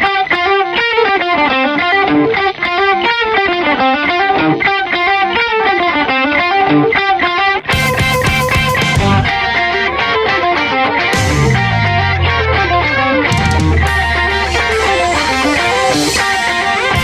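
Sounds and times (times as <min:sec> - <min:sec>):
distorted electric guitar riff: 0:00.0 - 0:17.0.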